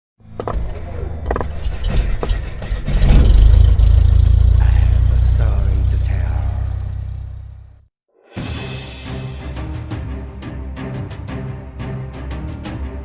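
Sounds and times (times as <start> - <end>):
rapid clicks and knocks: 1.3 - 5.2
engine-like low rumble: 1.5 - 7.9.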